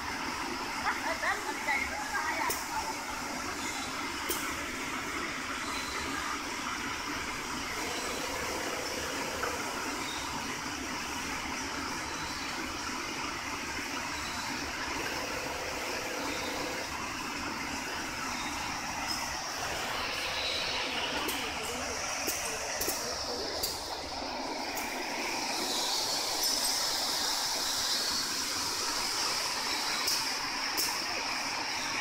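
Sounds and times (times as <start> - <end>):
industrial sewing machine running: 7.7 - 10.0, 14.6 - 17.0.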